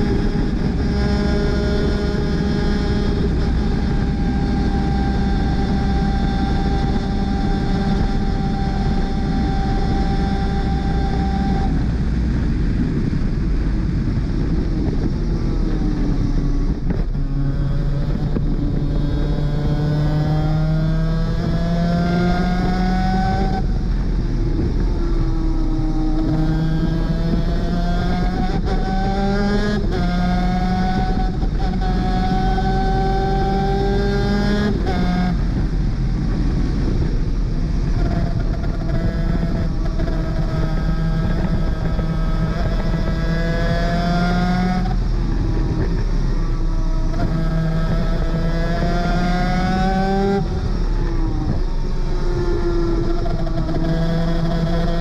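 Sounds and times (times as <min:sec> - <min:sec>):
kart engine at full throttle: 0:00.0 - 0:55.0.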